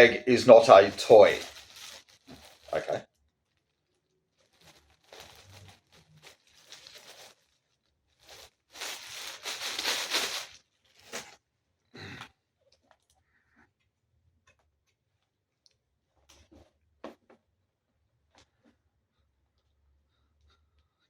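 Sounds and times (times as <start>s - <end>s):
plastic bag rustling and crinkling: 0.0s - 11.4s.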